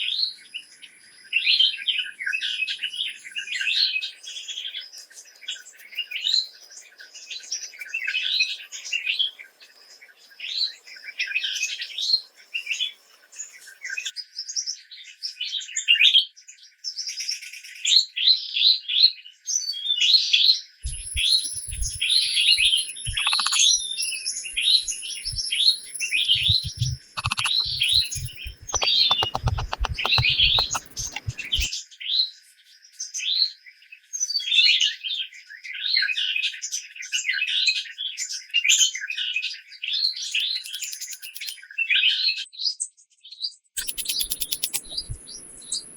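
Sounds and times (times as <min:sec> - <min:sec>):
birds chirping: 0:20.8 - 0:31.7, 0:43.8 - 0:45.9.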